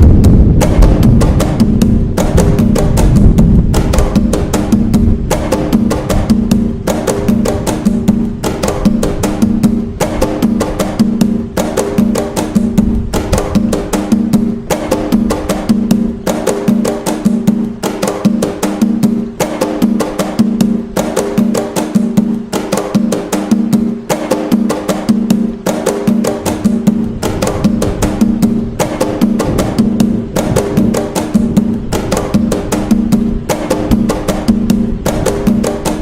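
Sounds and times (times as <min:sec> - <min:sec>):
hand drums playing: 0:00.0 - 0:36.0.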